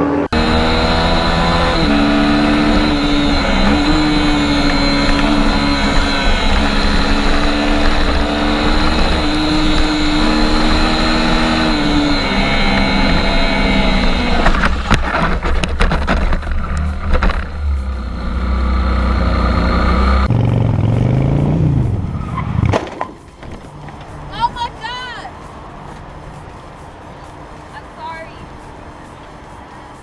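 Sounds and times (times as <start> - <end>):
motorcycle engine running: 0.0 - 22.1
road and wind noise: 0.0 - 30.0
sharp knocks and clatter: 14.4 - 17.6.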